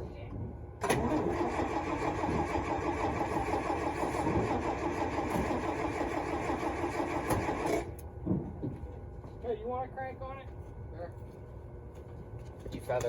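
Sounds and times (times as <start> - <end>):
truck engine labouring roughly: 0.8 - 7.9.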